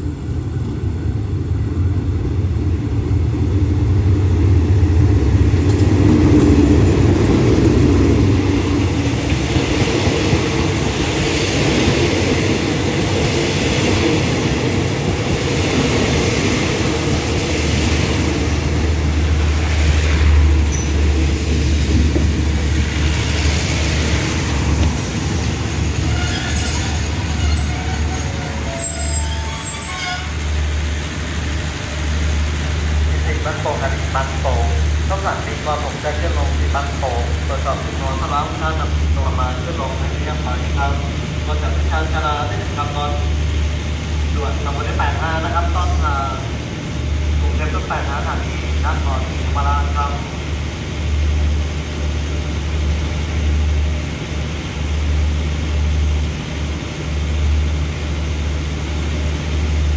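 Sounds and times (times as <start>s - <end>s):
diesel locomotive engine drone: 0.0s - 59.9s
train wheels rolling: 4.4s - 33.4s
brake squeals: 25.0s - 30.4s.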